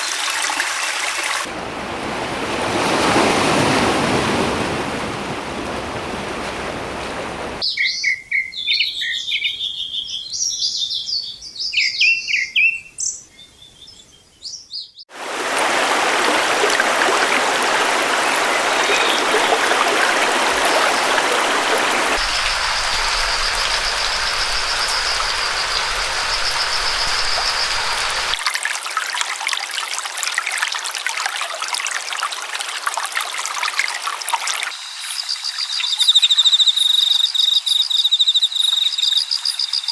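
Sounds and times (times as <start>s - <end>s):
running water rushing: 0.0s - 7.6s, 15.1s - 29.0s, 31.0s - 36.5s
songbirds chirping and singing: 7.6s - 15.0s, 35.0s - 39.9s.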